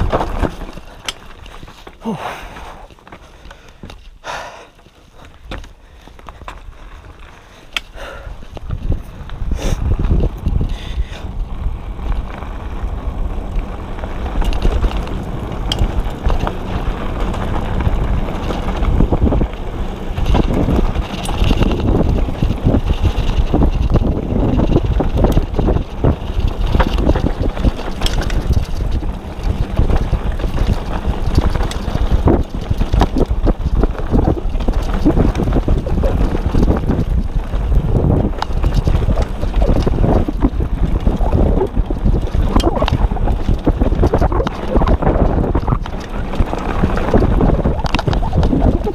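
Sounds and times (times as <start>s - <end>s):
wind buffeting microphone: 0.0s - 2.8s, 5.4s - 48.9s
bike tyres rumbling on dirt: 0.0s - 48.9s
chain and frame rattling: 20.2s - 33.2s.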